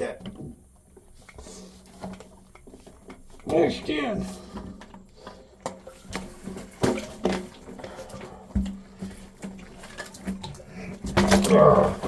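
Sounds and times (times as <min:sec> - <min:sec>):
plastic water line knocks and clunks: 0:04.5 - 0:12.0.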